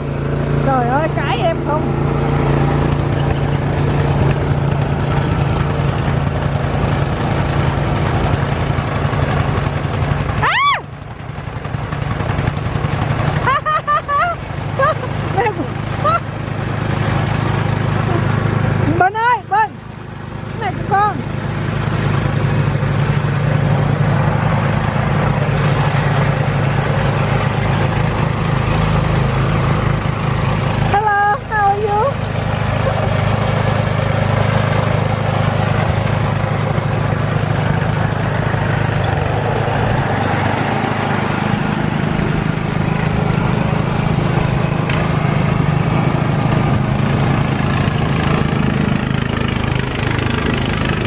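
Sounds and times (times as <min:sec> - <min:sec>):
snow blower engine droning: 0:00.0 - 0:51.0.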